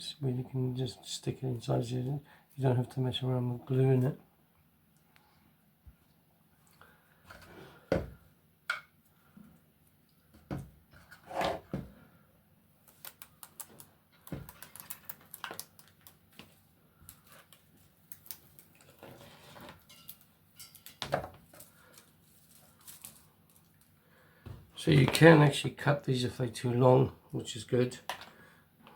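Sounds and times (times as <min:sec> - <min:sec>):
hands handling plastic parts: 0:12.8 - 0:24.0
clicks taps and rustles: 0:12.8 - 0:25.2.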